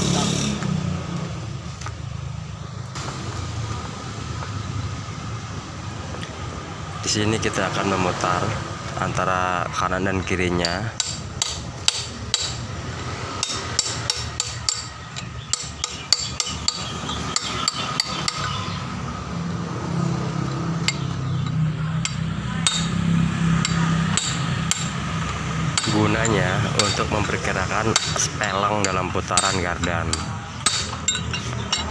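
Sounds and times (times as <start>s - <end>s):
hand tools striking metal: 10.1s - 18.8s, 20.5s - 31.9s.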